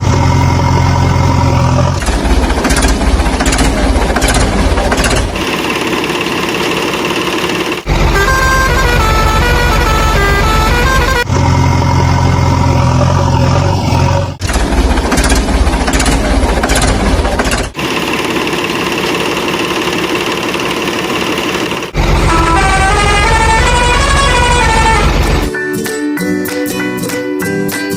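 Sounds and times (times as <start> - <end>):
vehicle engine sounds: 0.0 - 25.5
horn-like sounds: 7.8 - 12.2, 22.0 - 25.5.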